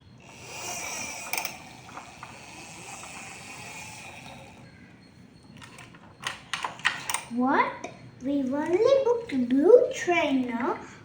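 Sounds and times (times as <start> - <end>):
geared mechanism whirring: 0.0 - 7.4.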